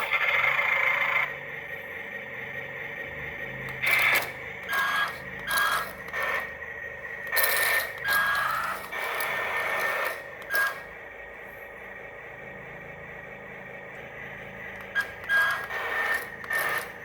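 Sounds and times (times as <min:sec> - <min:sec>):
toy electric motors whirring: 0:00.0 - 0:01.3, 0:03.6 - 0:11.0, 0:14.6 - 0:17.0.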